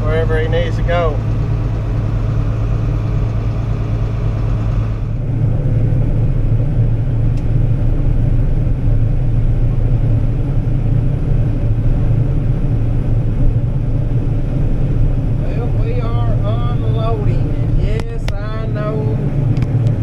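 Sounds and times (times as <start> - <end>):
tractor engine droning: 0.0 - 20.0.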